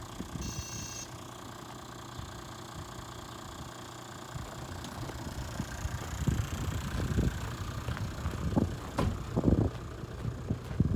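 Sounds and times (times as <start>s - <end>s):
diesel bus engine idling: 0.0s - 10.9s
low engine thumps: 4.4s - 10.9s.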